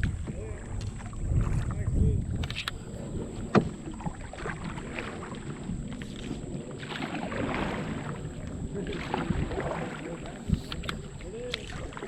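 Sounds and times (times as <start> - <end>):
paddle strokes splashing water: 0.0 - 12.0.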